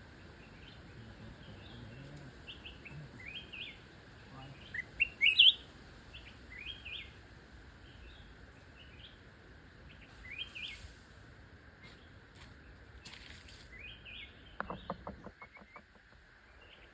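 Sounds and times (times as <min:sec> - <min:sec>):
faint background hiss: 0:00.0 - 0:16.9
bird chirping: 0:00.4 - 0:07.2, 0:13.7 - 0:16.9.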